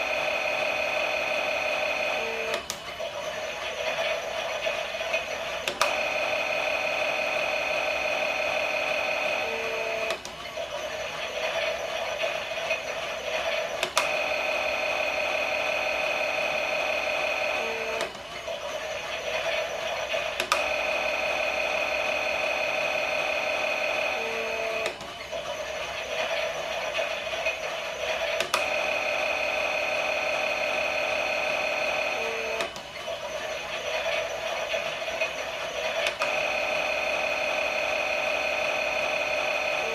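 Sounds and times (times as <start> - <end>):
toy mechanism clicks: 18.8 - 21.1, 25.8 - 29.7.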